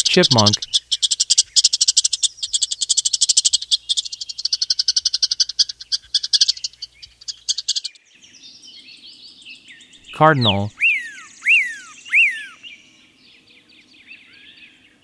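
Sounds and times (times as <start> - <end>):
squirrel chirping rapidly: 0.0 - 8.0, 10.3 - 12.7.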